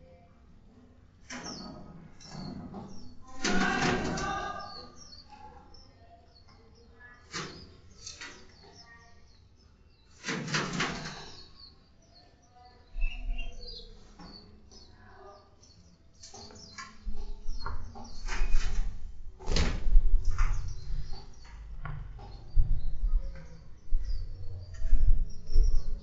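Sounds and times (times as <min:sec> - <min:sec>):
songbirds chirping: 0:00.0 - 0:26.0
low rumble: 0:19.3 - 0:26.0.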